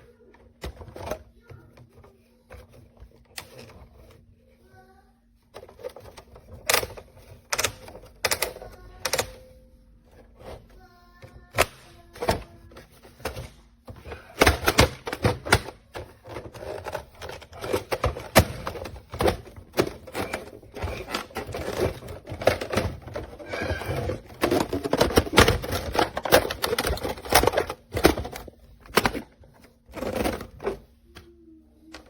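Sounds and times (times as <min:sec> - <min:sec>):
plastic toy clicks and clacks: 0:00.3 - 0:04.2, 0:05.5 - 0:09.5, 0:10.1 - 0:30.9.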